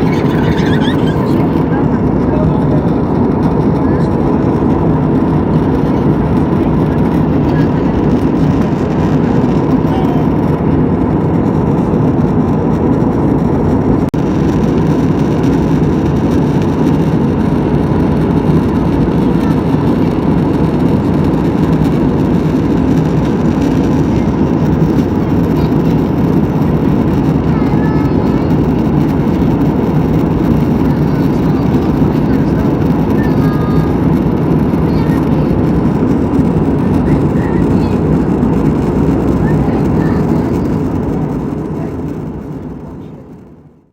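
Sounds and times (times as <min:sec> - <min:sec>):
steady hum: 0:00.0 - 0:43.8
jet engines and rushing air in cabin: 0:00.0 - 0:43.9.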